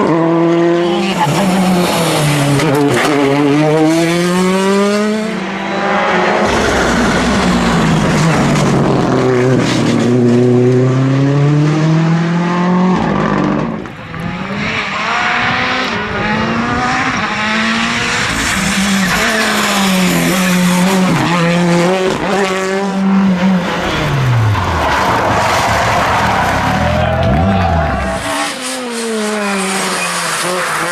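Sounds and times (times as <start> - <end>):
rally car engine revving: 0.0 - 30.9.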